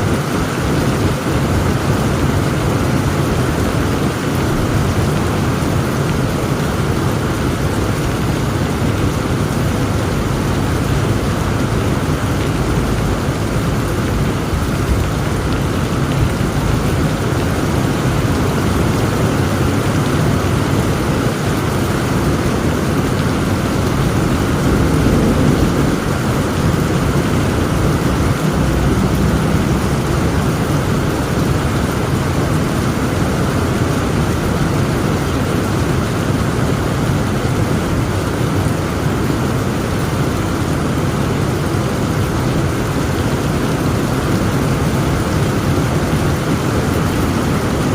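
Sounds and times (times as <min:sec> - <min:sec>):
heavy rain falling: 0:00.0 - 0:47.9
distant thunder rumbling: 0:22.5 - 0:32.4.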